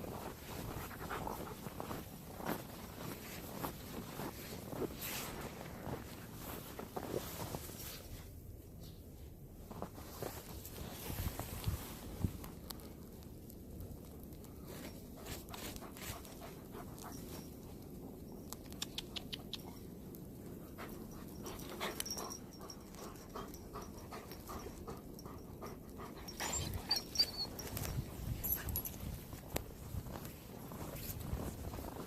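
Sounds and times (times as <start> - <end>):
footsteps crunching through snow: 0.0 - 8.1, 27.5 - 32.0
dog panting: 0.7 - 2.1, 20.4 - 27.7.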